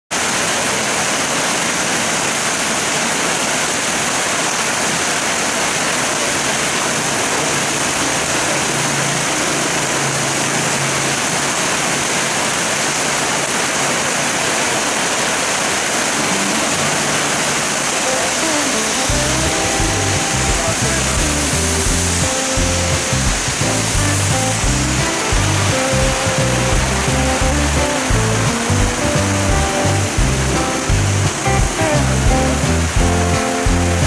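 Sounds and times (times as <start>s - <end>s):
heavy rain on pavement: 0.1s - 34.0s
runoff splashing on pavement: 0.2s - 34.0s.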